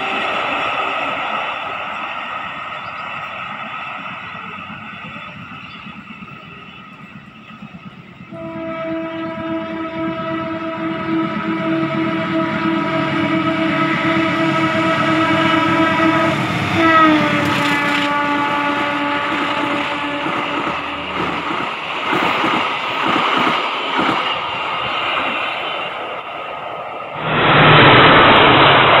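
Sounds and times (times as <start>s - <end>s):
carriages rumbling past: 0.0s - 24.9s
locomotive horn blast: 8.3s - 21.2s.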